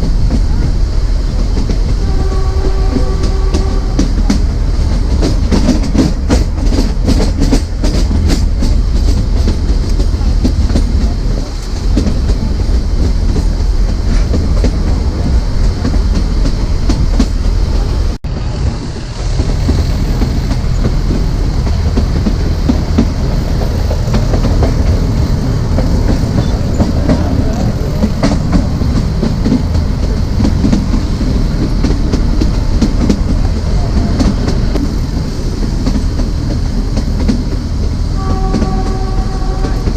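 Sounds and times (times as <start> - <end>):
train coach rumbling: 0.0 - 39.9
wheels clicking over rail joints: 0.0 - 39.9.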